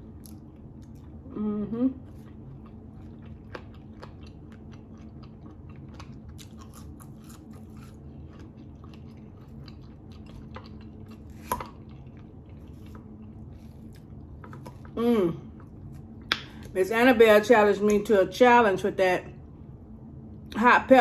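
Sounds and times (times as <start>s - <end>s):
person chewing: 0.0s - 16.7s
low hum: 0.0s - 21.0s.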